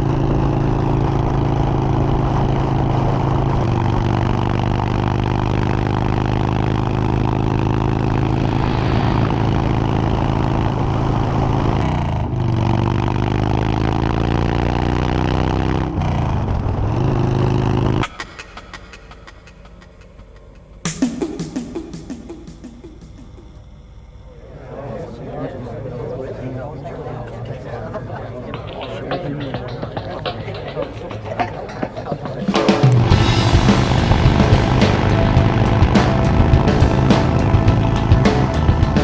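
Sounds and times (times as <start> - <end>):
motorcycle engine accelerating: 0.0 - 18.1, 32.5 - 39.0
wind rush: 8.2 - 11.8.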